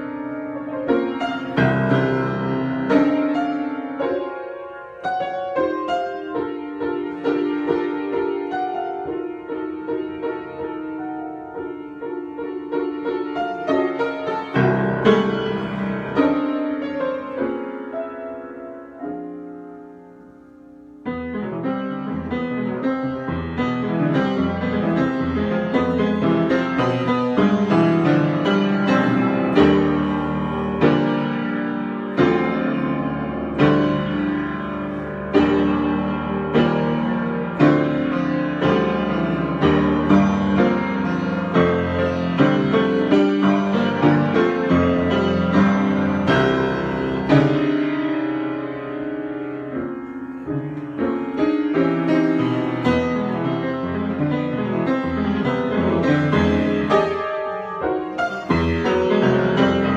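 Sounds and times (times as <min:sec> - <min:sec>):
solo piano: 0:00.0 - 0:59.9.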